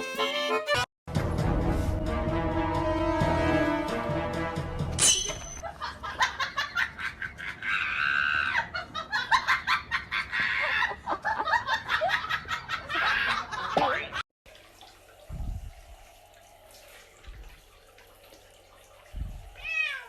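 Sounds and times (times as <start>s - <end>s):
people laughing hard: 5.6s - 13.8s.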